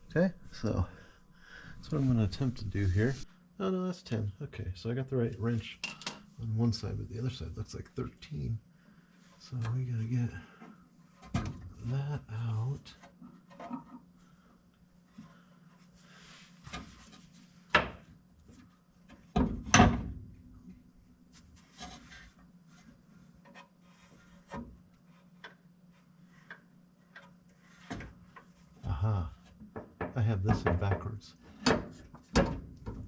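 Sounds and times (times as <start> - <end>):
faint steady hum: 0.0 - 33.0
tools and metal parts clinking: 5.8 - 6.3.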